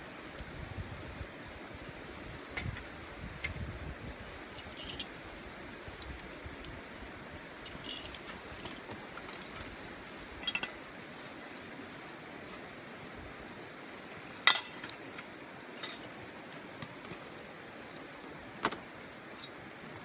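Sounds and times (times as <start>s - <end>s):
outdoor background hiss: 0.0s - 20.0s
metallic clinks of cooking gear: 4.6s - 5.1s, 7.7s - 9.8s, 10.4s - 10.8s, 14.5s - 16.1s.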